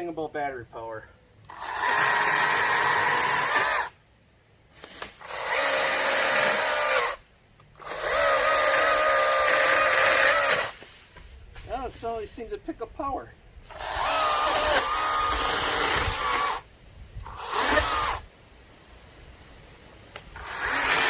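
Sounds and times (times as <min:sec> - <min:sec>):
battery chainsaw motor whine: 0:01.5 - 0:04.0, 0:05.2 - 0:07.2, 0:07.8 - 0:10.8, 0:13.7 - 0:18.3, 0:20.3 - 0:21.0.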